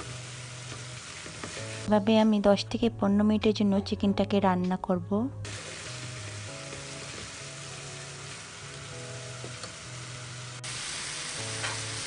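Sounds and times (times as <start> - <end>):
minced meat sizzling in a pan: 0.0 - 1.9, 5.5 - 12.0
soft slow background music: 0.0 - 12.0.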